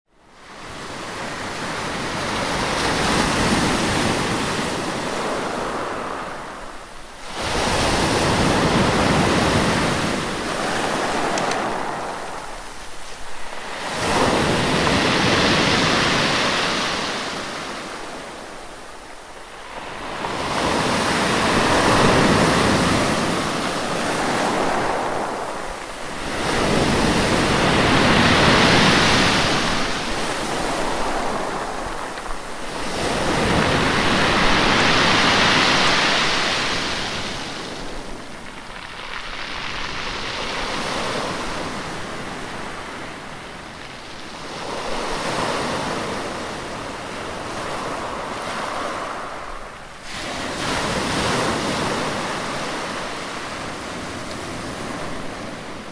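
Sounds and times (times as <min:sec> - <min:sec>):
ocean waves surging: 0:00.4 - 0:55.9.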